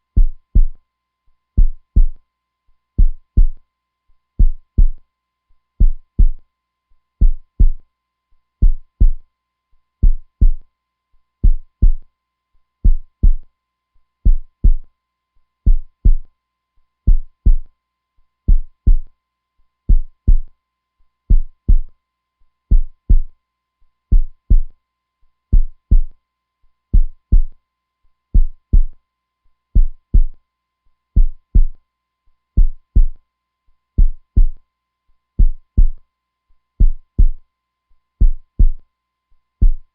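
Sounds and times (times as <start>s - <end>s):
heartbeat thumps: 0.2s - 0.8s, 1.6s - 2.2s, 3.0s - 3.6s, 4.4s - 5.0s, 5.8s - 6.4s, 7.2s - 7.8s, 8.6s - 9.2s, 10.0s - 10.6s, 11.4s - 12.0s, 12.8s - 13.4s, 14.3s - 14.8s, 15.7s - 16.2s, 17.1s - 17.7s, 18.5s - 19.1s, 19.9s - 20.5s, 21.3s - 21.9s, 22.7s - 23.3s, 24.1s - 24.7s, 25.5s - 26.1s, 27.0s - 27.5s, 28.4s - 29.0s, 29.8s - 30.4s, 31.2s - 31.8s, 32.6s - 33.2s, 34.0s - 34.6s, 35.4s - 36.0s, 36.8s - 37.4s, 38.2s - 38.8s, 39.6s - 39.9s.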